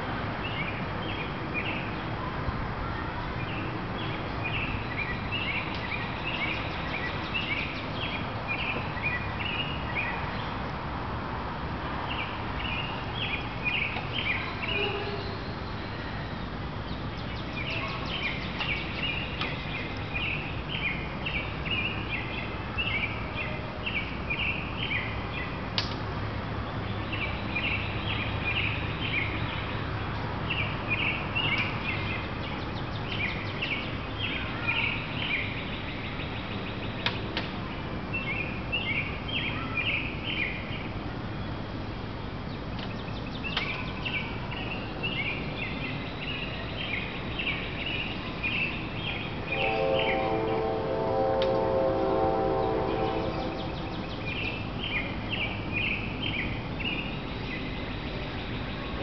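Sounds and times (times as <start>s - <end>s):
outdoor background noise: 0.0s - 59.0s
small birds chirping: 12.1s - 25.6s, 42.3s - 50.7s.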